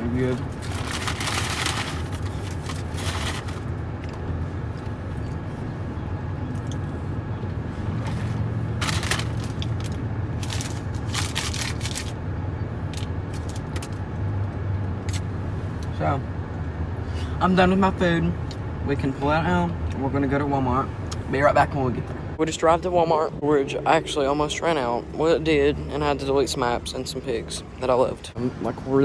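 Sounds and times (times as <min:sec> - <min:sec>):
rustling crinkling noises: 0:00.0 - 0:12.2, 0:12.8 - 0:14.1
car engine idling: 0:00.0 - 0:14.6.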